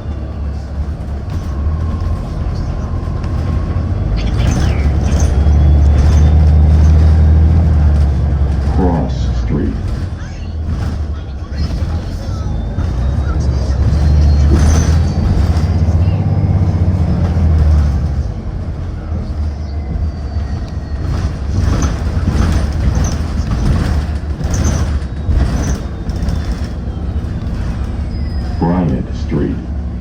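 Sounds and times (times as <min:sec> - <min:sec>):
bus engine rumbling: 0:00.0 - 0:30.0
road noise: 0:00.0 - 0:30.0.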